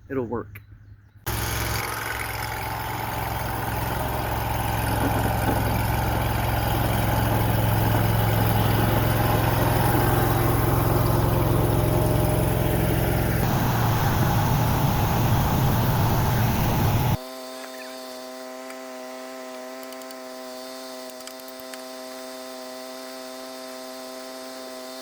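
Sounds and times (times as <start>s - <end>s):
skid steer engine running: 1.3s - 17.9s.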